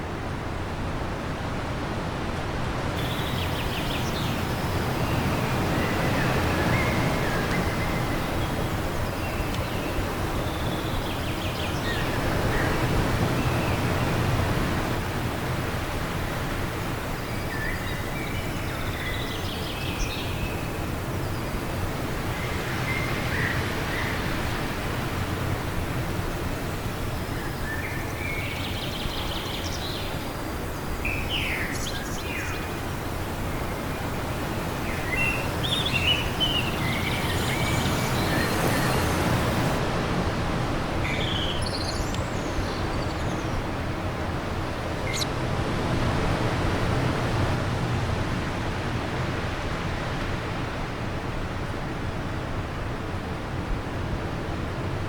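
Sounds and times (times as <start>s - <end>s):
wind: 0.0s - 55.0s
songbirds chirping: 3.0s - 39.8s, 41.0s - 44.2s.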